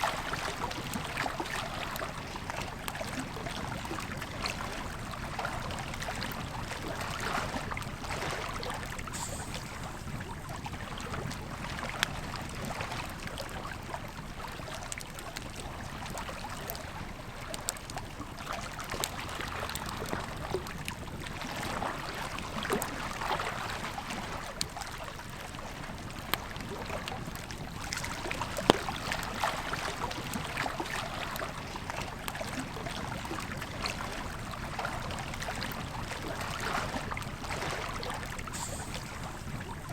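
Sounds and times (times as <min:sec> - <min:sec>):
campfire crackling: 0:25.8 - 0:36.4, 0:38.2 - 0:39.9
river flowing: 0:26.7 - 0:39.9.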